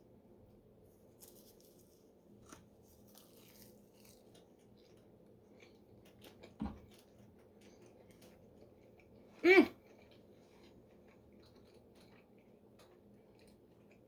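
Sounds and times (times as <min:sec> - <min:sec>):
close-up chewing: 0:01.1 - 0:14.0.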